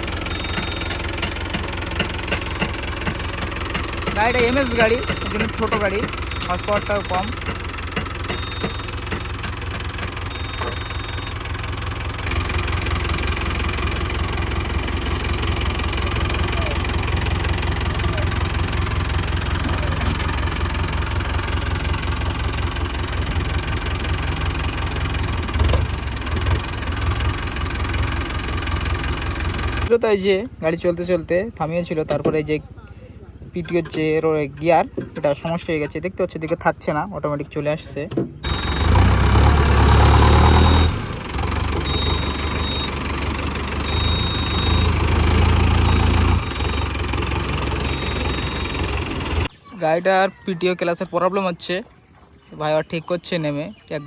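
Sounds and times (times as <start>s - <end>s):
engine knock: 0.0s - 29.9s, 38.4s - 49.5s
tractor diesel engine running: 0.0s - 51.8s.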